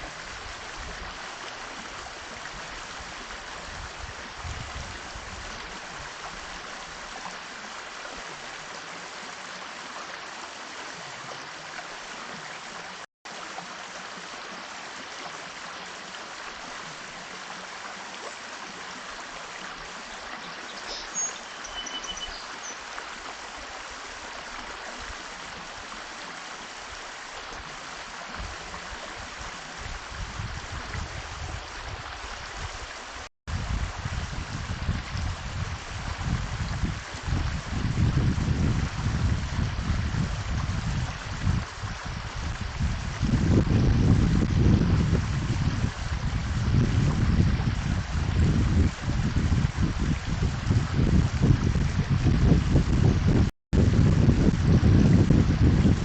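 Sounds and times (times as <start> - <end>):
rushing water: 0.0 - 56.0
high bird chirps: 20.6 - 22.8.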